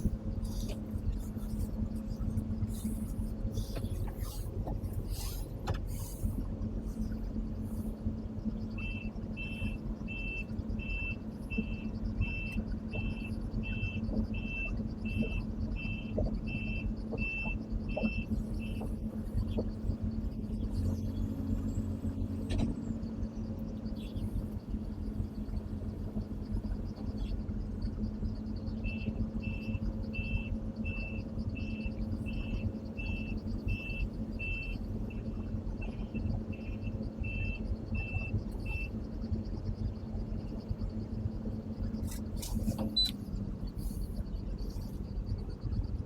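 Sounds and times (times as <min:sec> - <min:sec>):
diesel engine running: 0:00.0 - 0:46.0
travel alarm beeps: 0:08.7 - 0:19.0, 0:28.8 - 0:35.2, 0:35.8 - 0:39.0, 0:42.8 - 0:43.2.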